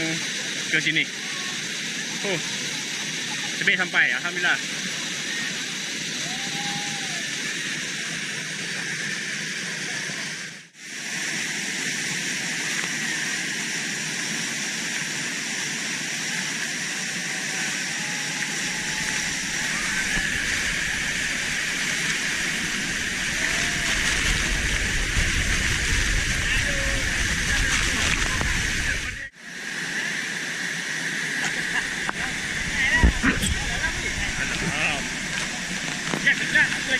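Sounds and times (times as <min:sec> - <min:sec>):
waterfall rushing: 0:00.0 - 0:36.9
low rumble: 0:18.7 - 0:29.3, 0:31.8 - 0:36.9.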